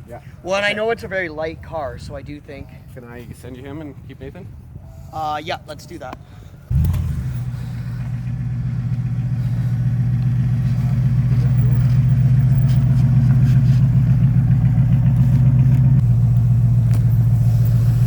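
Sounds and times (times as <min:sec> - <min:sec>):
vehicle engine droning: 0:06.7 - 0:18.0.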